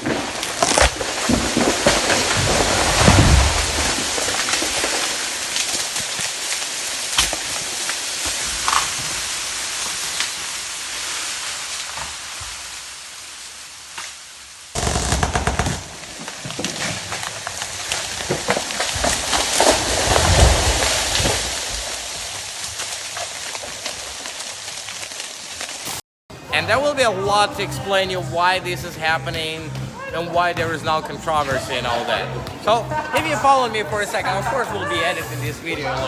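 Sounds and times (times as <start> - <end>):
sharp crackles: 0.0 - 26.0.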